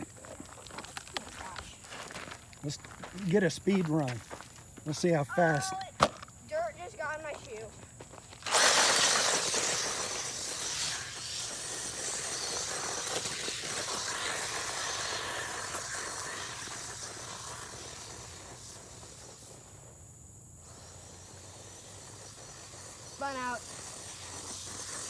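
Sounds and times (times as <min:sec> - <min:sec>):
dirt spraying: 0:00.0 - 0:25.0
rc truck motor and tyre noise: 0:06.2 - 0:25.0.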